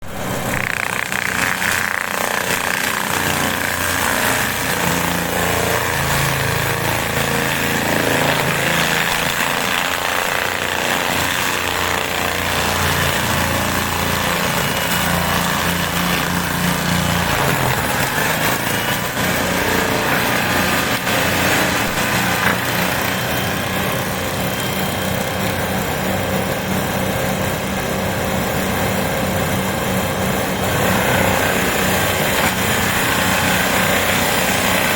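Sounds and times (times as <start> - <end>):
forestry mulcher grinding trees: 0.0 - 34.9
tractor engine under load: 0.0 - 34.9.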